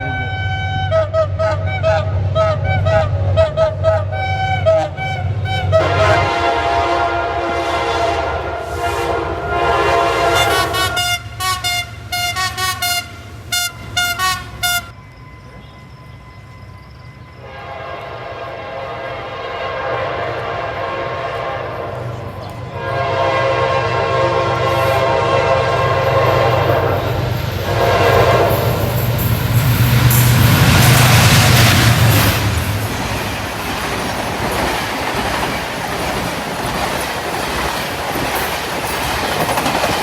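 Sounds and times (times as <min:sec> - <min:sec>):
train horn toots and blast: 0:00.0 - 0:15.9, 0:17.4 - 0:29.3
low rumble of train: 0:00.0 - 0:40.0.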